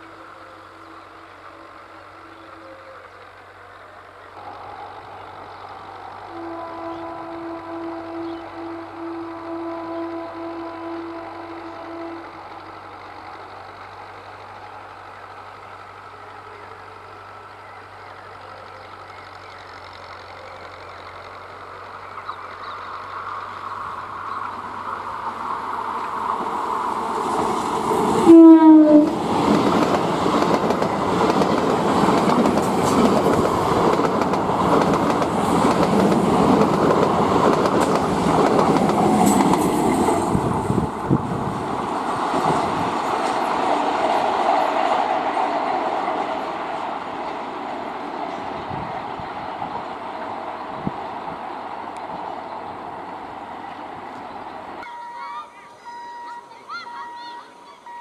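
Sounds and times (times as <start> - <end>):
train passing: 0.0 - 58.0
train horn blast: 4.4 - 13.0, 24.0 - 31.4.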